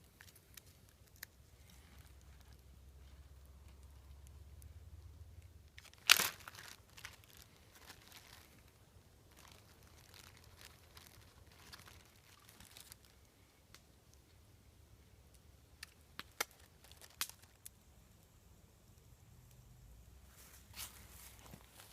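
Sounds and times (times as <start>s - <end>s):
plastic bag crinkling: 5.7s - 13.2s, 16.2s - 17.7s
plastic bag tearing: 5.8s - 8.6s, 9.3s - 13.1s.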